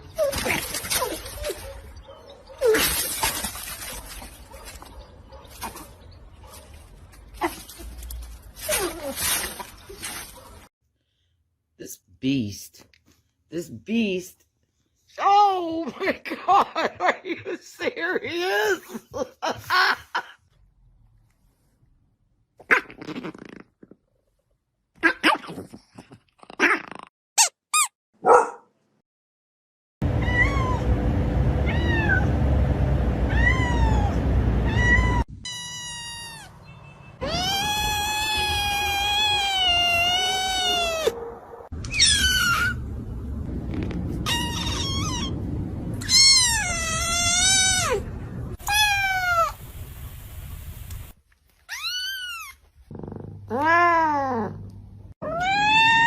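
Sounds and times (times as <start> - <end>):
cats meowing and yowling: 30.1 - 30.9, 31.6 - 32.4, 33.3 - 36.5, 37.2 - 41.2, 41.8 - 42.8, 46.0 - 48.0, 48.6 - 49.6, 51.7 - 52.6, 55.2 - 56.0.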